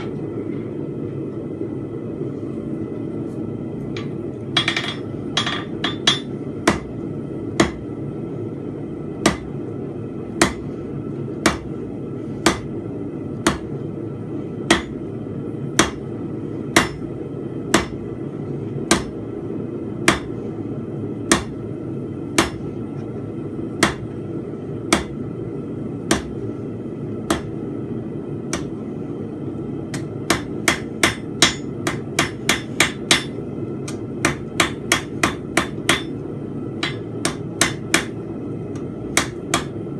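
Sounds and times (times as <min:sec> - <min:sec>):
hammer striking steel on anvil: 0:04.6 - 0:06.9, 0:12.4 - 0:12.7, 0:14.7 - 0:15.0, 0:15.8 - 0:16.0, 0:16.8 - 0:17.1, 0:17.8 - 0:18.0, 0:18.9 - 0:19.1, 0:20.1 - 0:20.3, 0:22.4 - 0:22.6, 0:23.8 - 0:24.0, 0:24.9 - 0:25.2, 0:26.1 - 0:26.3, 0:27.3 - 0:27.5, 0:29.9 - 0:36.2, 0:36.8 - 0:38.2, 0:39.1 - 0:39.8.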